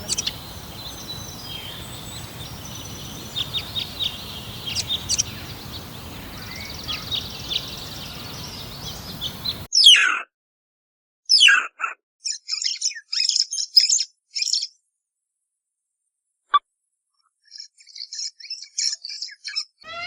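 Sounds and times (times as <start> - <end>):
outdoor background hum: 0.0 - 9.7
small birds chirping: 0.0 - 9.9, 12.2 - 14.8, 17.4 - 20.0.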